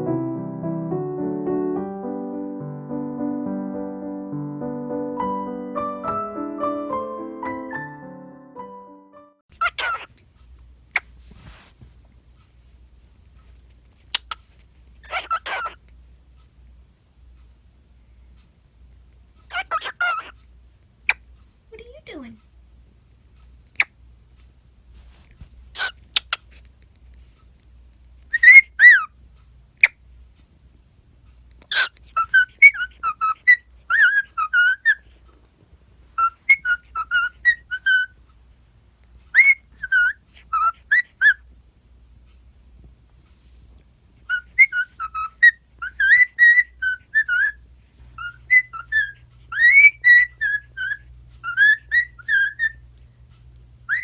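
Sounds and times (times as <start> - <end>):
cockatiel whistling a tune: 28.3 - 29.1, 31.7 - 35.0, 36.2 - 38.2, 39.3 - 41.4, 44.3 - 47.6, 48.2 - 52.8.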